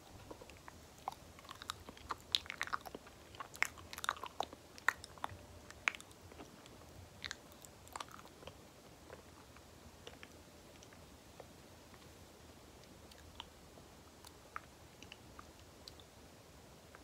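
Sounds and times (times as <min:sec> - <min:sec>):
banana being chewed: 0:00.1 - 0:12.1.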